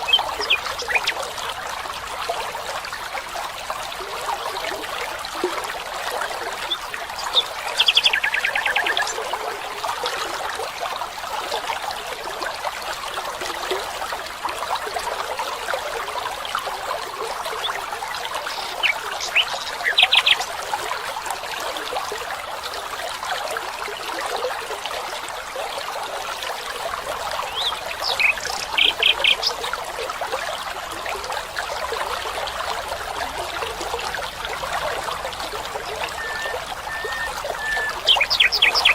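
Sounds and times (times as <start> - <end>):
stream trickling: 0.0 - 38.9
bird calling rapid high notes: 36.0 - 38.9.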